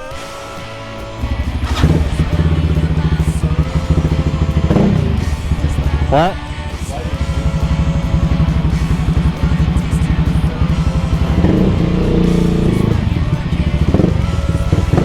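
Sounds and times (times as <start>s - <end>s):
small motorcycle engine running: 1.0s - 15.0s.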